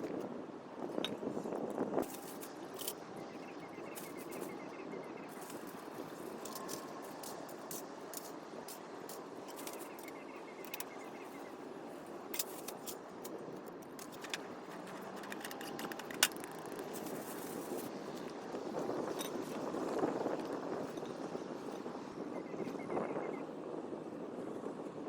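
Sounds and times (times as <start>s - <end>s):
steady background rush: 0.0s - 21.5s
light clicks and clinks of gear: 1.0s - 4.6s, 5.3s - 11.4s, 12.3s - 21.3s.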